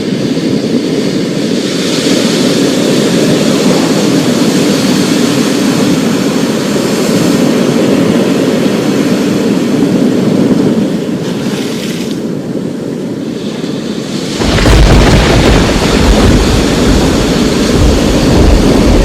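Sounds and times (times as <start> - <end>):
wind: 0.0 - 19.0
rain: 14.2 - 19.0
low thunder rumble: 14.4 - 19.0.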